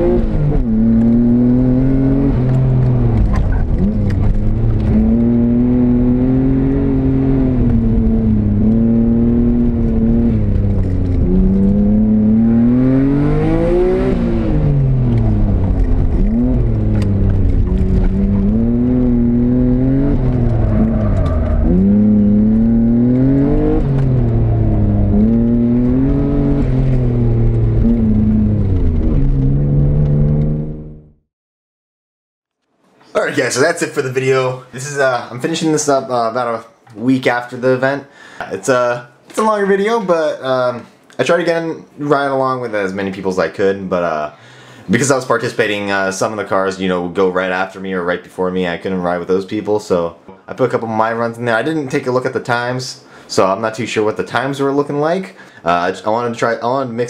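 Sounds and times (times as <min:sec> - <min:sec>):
car engine revving: 0:00.0 - 0:31.1.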